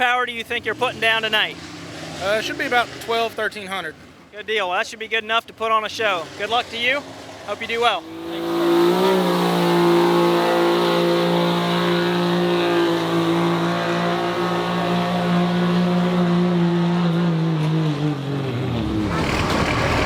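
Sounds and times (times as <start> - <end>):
diesel truck engine under load: 6.1 - 20.0.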